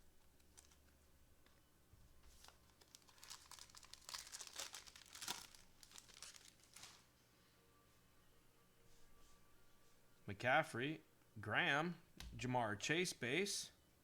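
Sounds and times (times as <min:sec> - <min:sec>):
plastic wrapper crinkling and tearing: 0:00.0 - 0:01.0, 0:02.3 - 0:07.1.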